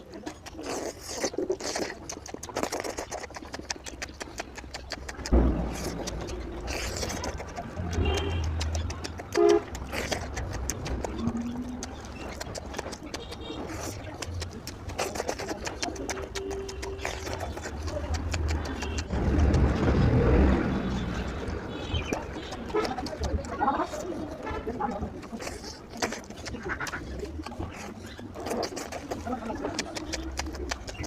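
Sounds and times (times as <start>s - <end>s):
wet chewing and mouth smacking: 0.0s - 31.0s.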